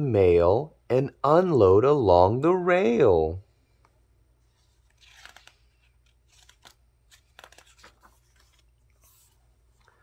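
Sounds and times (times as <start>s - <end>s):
book page rustling and turning: 4.4s - 10.0s.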